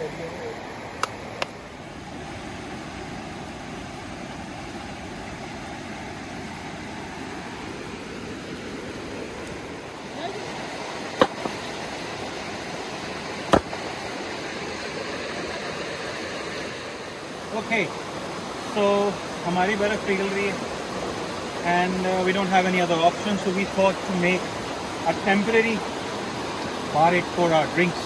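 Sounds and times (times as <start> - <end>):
small stream running: 0.0 - 28.0
sharp knocks: 11.2 - 11.6, 13.5 - 14.0.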